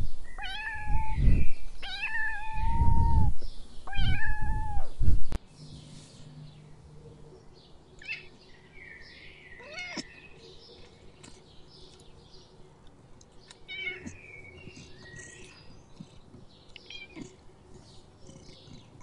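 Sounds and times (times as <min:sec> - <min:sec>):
cat mewing: 0:00.4 - 0:01.2, 0:01.8 - 0:03.3, 0:03.9 - 0:04.9, 0:09.6 - 0:10.1, 0:13.7 - 0:14.2, 0:16.9 - 0:17.4.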